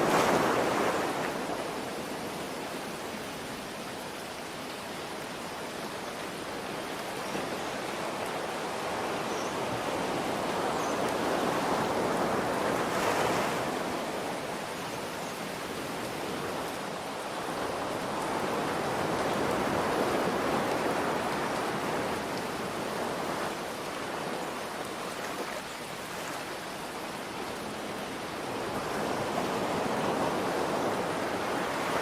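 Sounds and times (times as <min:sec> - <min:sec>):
ocean waves washing in: 0:00.0 - 0:04.8.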